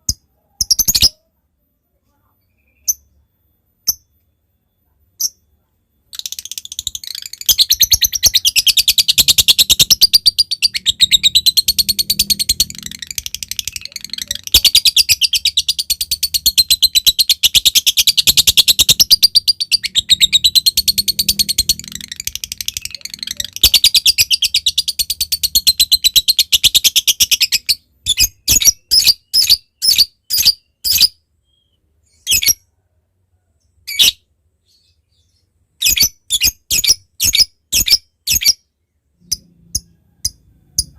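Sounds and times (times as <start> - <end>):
lovebird chattering trill: 6.1 - 31.1
short bird chirps: 26.6 - 32.7.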